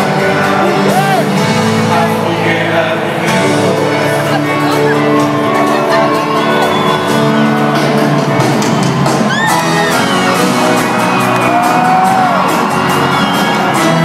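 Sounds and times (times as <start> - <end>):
live band playing: 0.0 - 14.0
audience whoops and shouts: 5.4 - 7.8, 8.6 - 14.0.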